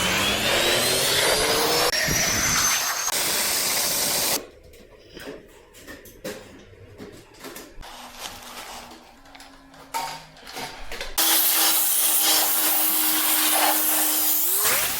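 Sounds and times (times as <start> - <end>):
pressure washer spraying water: 11.2 - 14.9.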